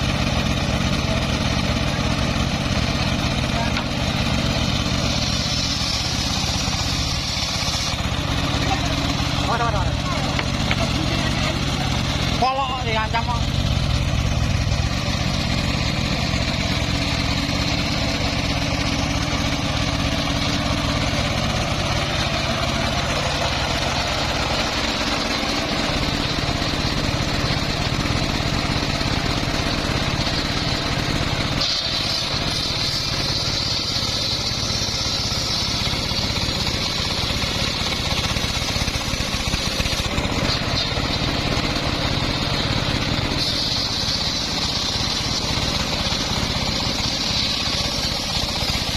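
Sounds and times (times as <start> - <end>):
high saw blade whine: 0.0 - 48.9
sawmill engine running: 0.0 - 48.9.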